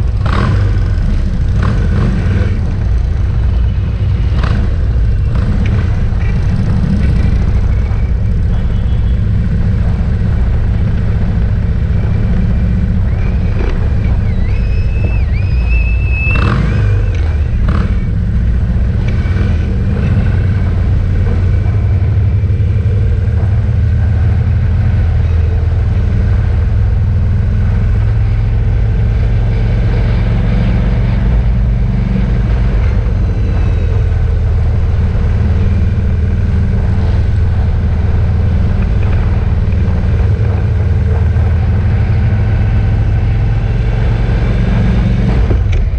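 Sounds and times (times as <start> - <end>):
wavering high whistle: 14.2 - 16.5.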